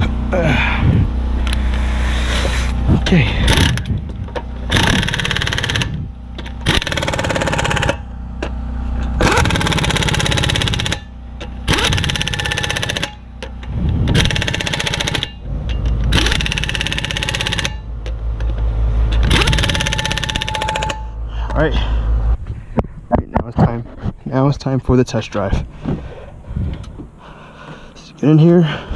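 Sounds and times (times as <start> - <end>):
impact wrench hammering: 3.4 - 21.2.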